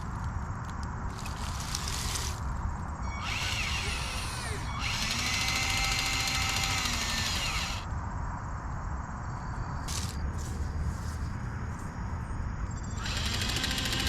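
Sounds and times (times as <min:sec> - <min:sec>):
small electric motor whirring: 0:01.1 - 0:02.4, 0:03.1 - 0:07.9, 0:13.0 - 0:14.0.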